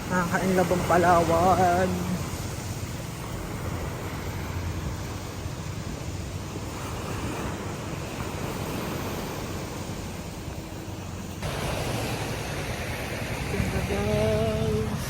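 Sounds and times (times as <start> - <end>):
sea surf washing: 0.0 - 15.0
wind rumbling on microphone: 0.0 - 15.0.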